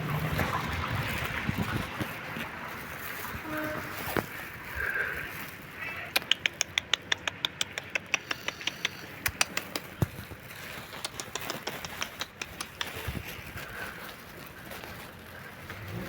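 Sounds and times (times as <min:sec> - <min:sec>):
cat chewing with crunches: 0:04.0 - 0:16.0.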